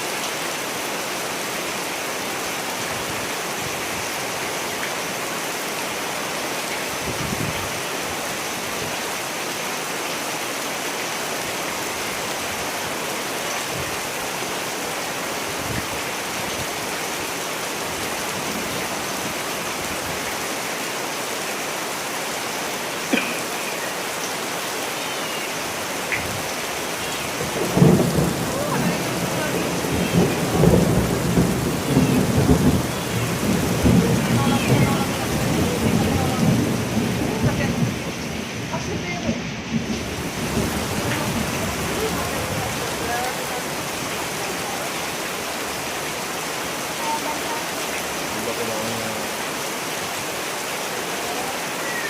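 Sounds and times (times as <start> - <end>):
heavy rain: 0.0 - 52.0
thunder rumbling: 26.2 - 44.4.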